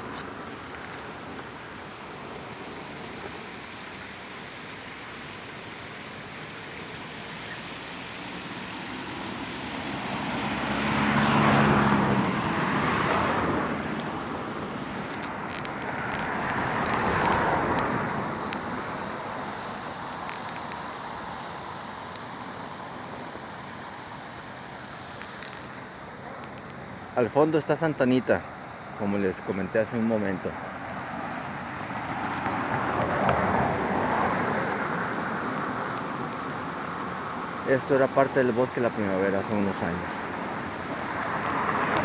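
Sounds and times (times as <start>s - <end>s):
steady traffic hum: 0.0s - 42.0s
vehicles passing: 0.0s - 42.0s
sharp clicks: 15.1s - 17.9s, 20.2s - 21.0s, 26.4s - 26.8s.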